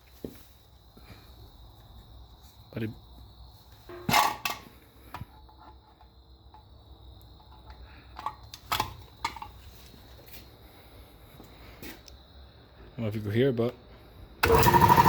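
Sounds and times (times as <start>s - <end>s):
air compressor humming: 14.4s - 15.0s.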